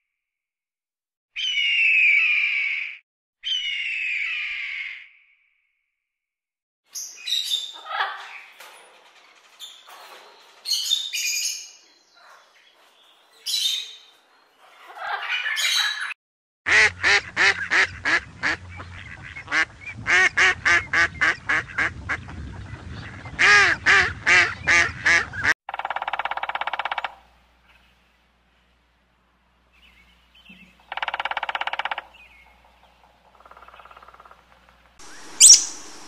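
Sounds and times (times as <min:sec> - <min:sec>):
parrot squawking: 0:35.0 - 0:36.0.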